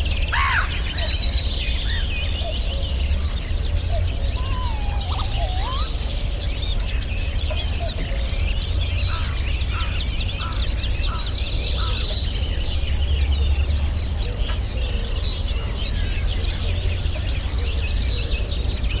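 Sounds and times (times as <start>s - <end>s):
birds chirping and trilling: 0.0s - 19.0s
short low bird calls: 2.0s - 6.9s.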